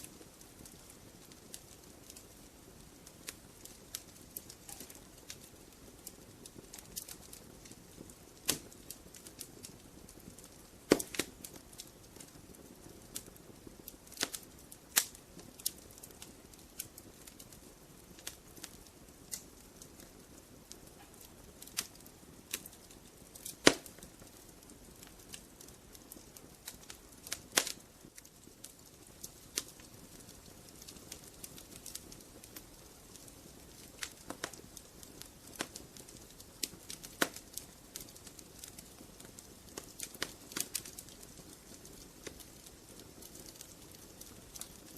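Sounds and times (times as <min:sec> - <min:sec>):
fire hissing: 0:00.0 - 0:27.8, 0:28.4 - 0:44.9
logs crackling and popping: 0:00.0 - 0:44.9.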